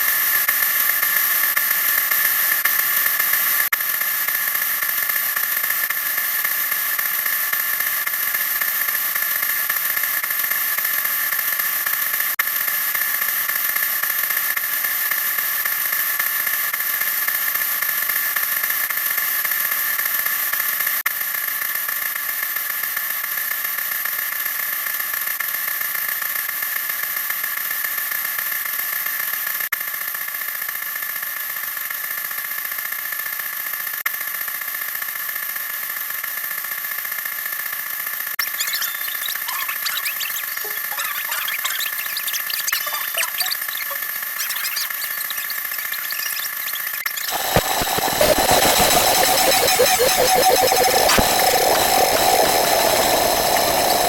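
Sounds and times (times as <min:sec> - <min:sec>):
high-pitched whine: 0:38.4 - 0:54.0.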